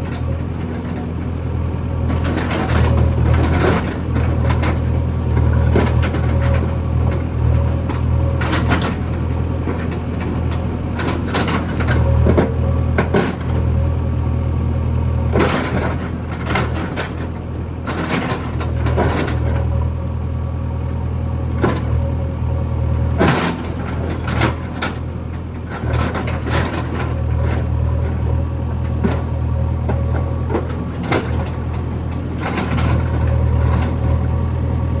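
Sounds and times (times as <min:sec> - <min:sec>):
diesel engine droning: 0:00.0 - 0:35.0
machine knocks and clanks: 0:23.2 - 0:25.1, 0:25.7 - 0:28.3, 0:28.9 - 0:34.2.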